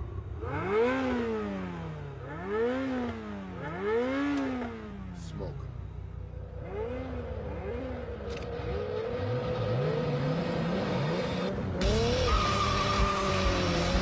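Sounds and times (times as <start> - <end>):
sports car engine revving: 6.4 - 14.0
tyre squeal and skid: 8.6 - 14.0.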